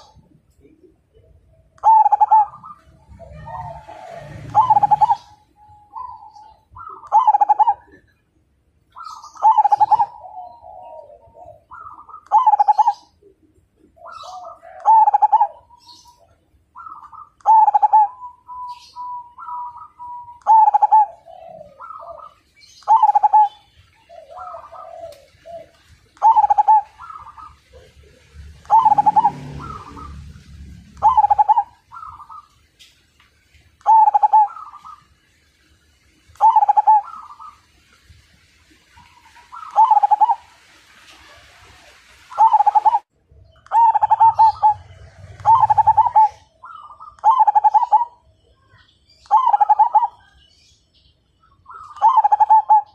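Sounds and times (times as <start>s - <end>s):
dove cooing: 0.0s - 8.2s, 8.9s - 32.6s, 33.8s - 35.1s, 36.4s - 37.7s, 38.8s - 48.3s, 49.2s - 50.4s, 51.7s - 52.9s
small birds chirping: 0.0s - 40.5s, 42.3s - 52.9s.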